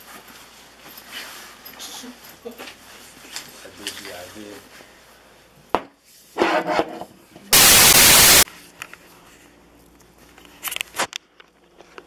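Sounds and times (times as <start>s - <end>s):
static hiss burst: 7.5s - 8.4s.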